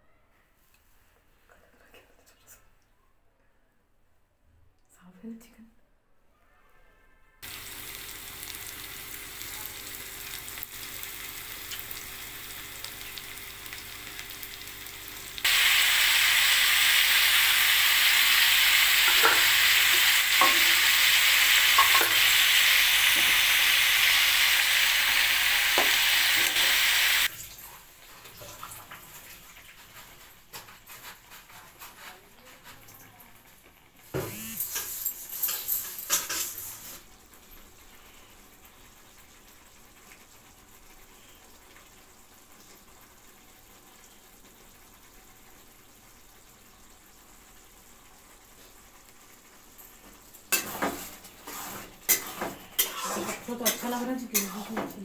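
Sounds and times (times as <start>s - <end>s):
chicken sizzling in oil: 7.4s - 27.3s, 36.8s - 55.0s.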